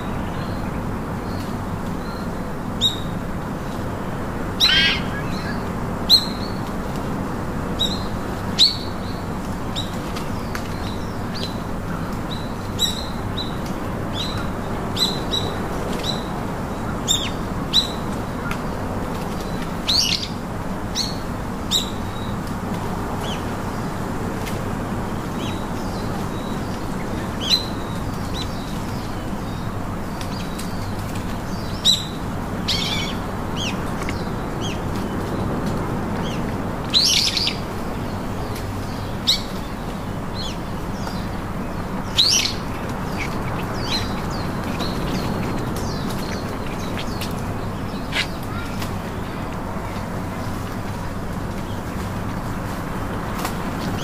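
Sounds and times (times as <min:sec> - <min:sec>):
birds chirping: 0:00.0 - 0:07.0, 0:24.8 - 0:54.0
steady low background noise: 0:00.0 - 0:54.0.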